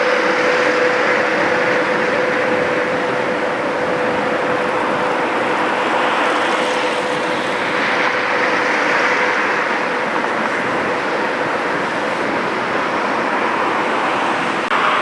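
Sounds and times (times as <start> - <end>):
loud mechanical hum: 0.0 - 15.0.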